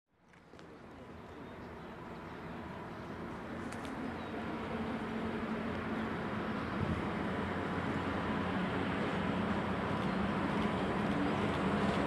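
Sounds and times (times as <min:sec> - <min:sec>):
freight train running: 0:00.6 - 0:12.0.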